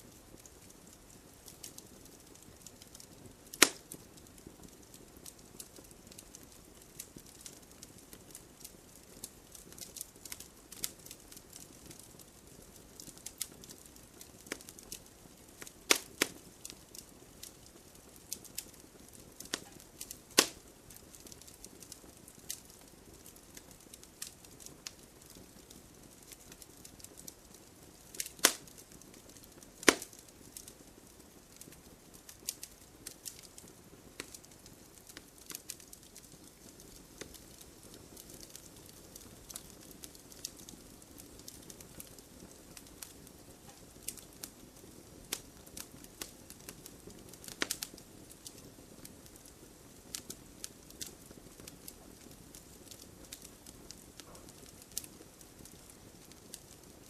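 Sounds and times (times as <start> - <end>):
campfire crackling: 0.0 - 57.0
sharp pops of burning wood: 0.1 - 57.0.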